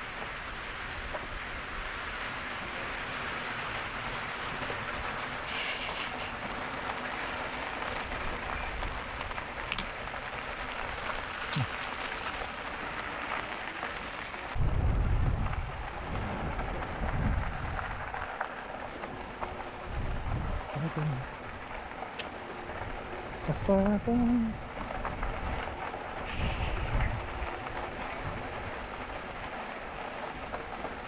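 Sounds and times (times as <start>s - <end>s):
bike tyres rolling on trail: 0.0s - 31.0s
wind gusts buffeting microphone: 14.5s - 18.4s, 19.4s - 22.0s, 22.7s - 30.8s
wind rushing over microphone: 14.6s - 18.3s, 19.8s - 21.3s, 22.8s - 28.9s.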